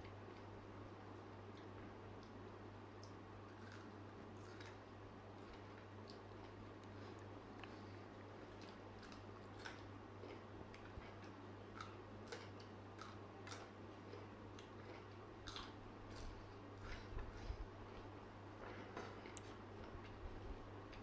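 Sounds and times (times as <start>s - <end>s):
steady low hum: 0.0s - 21.0s
person chewing crunchy food: 3.0s - 4.8s, 5.4s - 18.1s.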